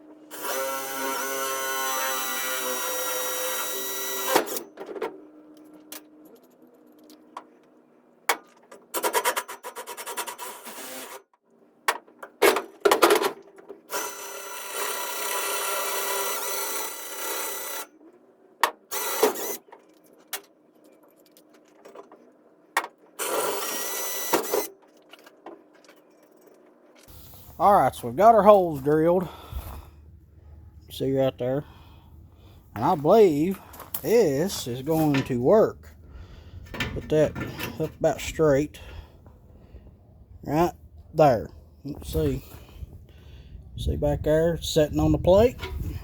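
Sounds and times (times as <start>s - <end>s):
electric drill boring steel: 0.3s - 4.6s, 13.9s - 17.8s, 23.2s - 24.7s
metal parts knocking and clicking: 36.6s - 37.9s.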